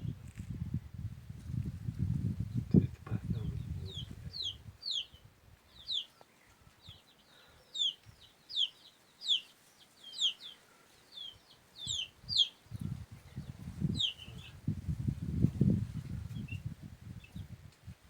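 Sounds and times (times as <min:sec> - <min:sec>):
small bird calling: 0:03.4 - 0:14.6.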